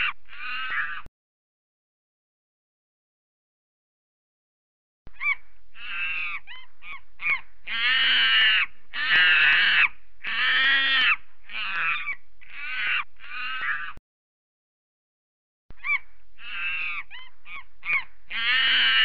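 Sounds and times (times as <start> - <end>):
monkey harsh hoarse calls: 0.0 - 1.1, 5.1 - 14.0, 15.8 - 19.0.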